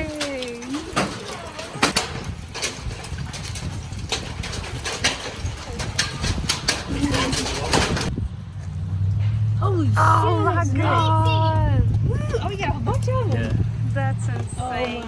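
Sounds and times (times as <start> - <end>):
hailstones hitting hard surfaces: 0.0 - 8.1.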